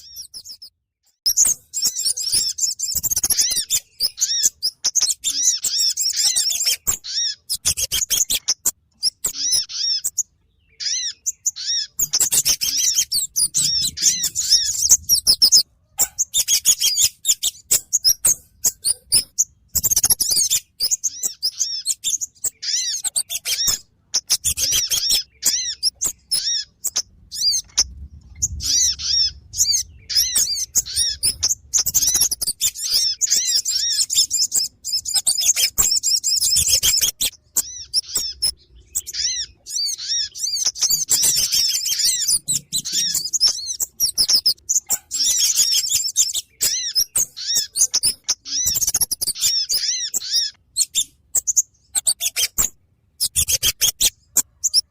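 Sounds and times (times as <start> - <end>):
small songbirds chirping: 0.0 - 54.9.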